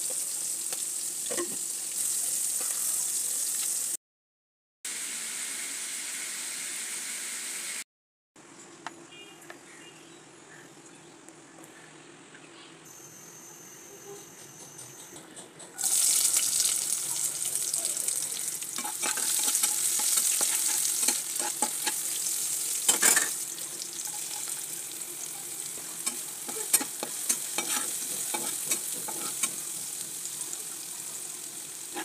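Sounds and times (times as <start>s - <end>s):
onions sizzling in hot oil: 0.0s - 4.0s, 4.9s - 7.8s, 15.8s - 32.0s
utensil clicking and scraping pan: 26.0s - 29.6s.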